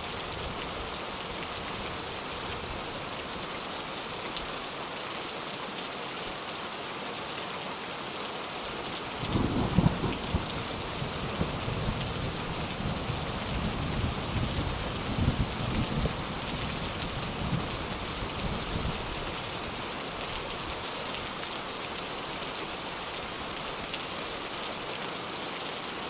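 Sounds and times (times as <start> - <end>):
steady rain falling: 0.0 - 26.0
low rumble of thunder: 9.2 - 17.8.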